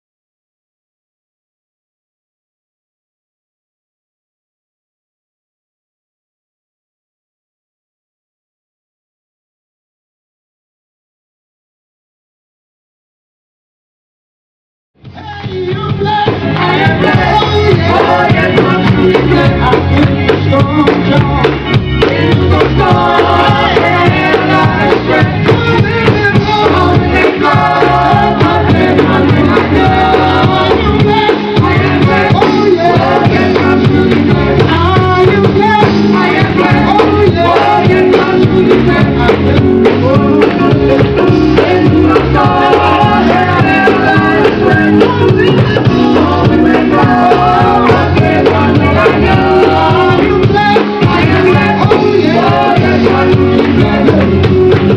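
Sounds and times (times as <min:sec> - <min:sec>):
band with bass and drums: 0:15.0 - 0:54.9
gospel singers in harmony: 0:15.2 - 0:54.9.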